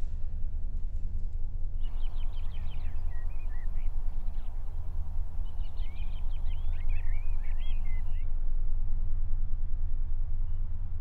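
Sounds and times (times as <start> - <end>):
low steady rumble: 0.0 - 11.0
songbird chirping: 1.8 - 8.2.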